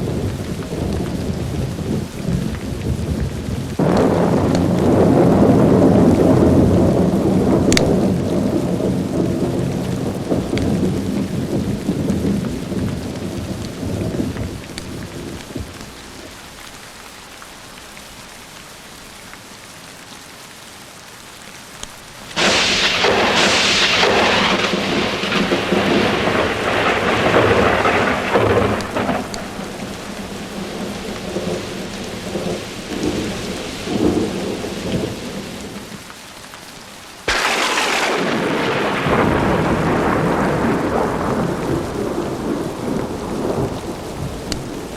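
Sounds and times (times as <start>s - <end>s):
close thunderclap: 0.0s - 16.3s, 22.3s - 36.0s, 37.3s - 44.9s
thunder rumbling: 0.0s - 16.6s, 22.3s - 36.0s, 37.3s - 44.9s
steady rain: 0.0s - 44.9s.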